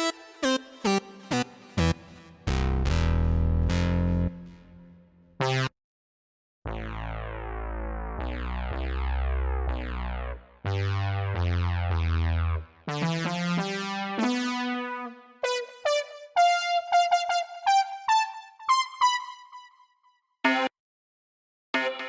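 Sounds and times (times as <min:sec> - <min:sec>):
held synth chords: 0:00.0 - 0:04.9, 0:12.9 - 0:19.7
deep synth bass: 0:01.7 - 0:05.7, 0:06.7 - 0:15.1.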